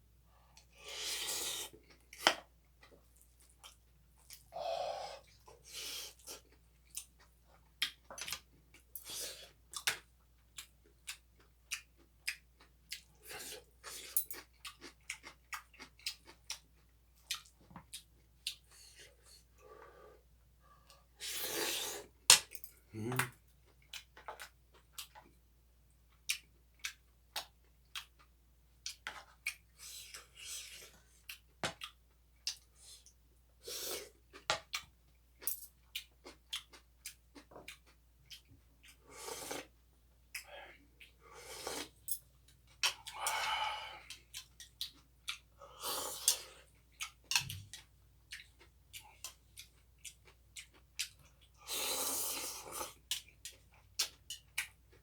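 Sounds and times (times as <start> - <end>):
chewing: 2.8 - 19.9, 26.1 - 33.1, 35.8 - 55.0
low hum of a voice: 22.9 - 23.3.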